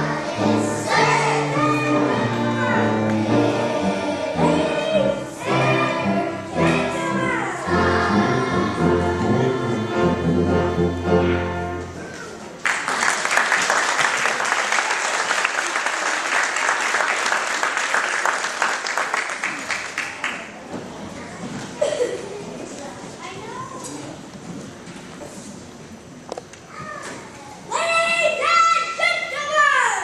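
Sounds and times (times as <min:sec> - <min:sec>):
children singing: 0:00.0 - 0:11.6
audience applause: 0:12.6 - 0:20.6.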